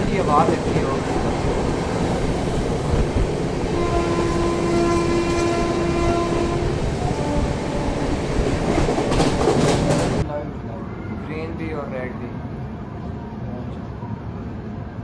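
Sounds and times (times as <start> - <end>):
train rumbling on track: 0.0 - 15.0
train horn blast: 3.7 - 8.2.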